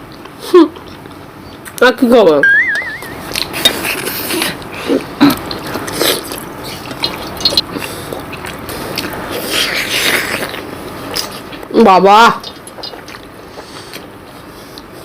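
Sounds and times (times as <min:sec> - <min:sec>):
chewing and handling food clicks: 0:05.3 - 0:11.7, 0:12.4 - 0:14.1.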